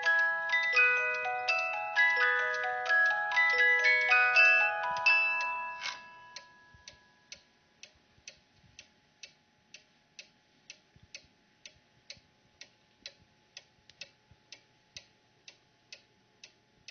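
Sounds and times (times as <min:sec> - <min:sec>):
music box notes: 0:00.0 - 0:07.4
clock ticking: 0:00.0 - 0:16.9.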